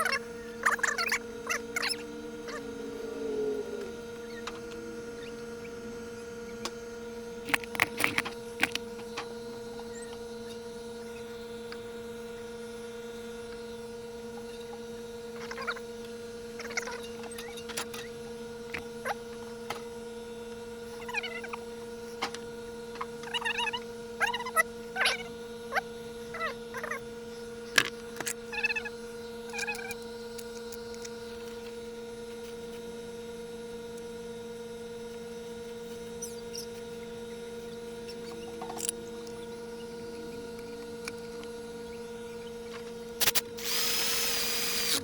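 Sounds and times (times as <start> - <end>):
steady electrical hum: 0.0 - 14.1, 27.0 - 45.0.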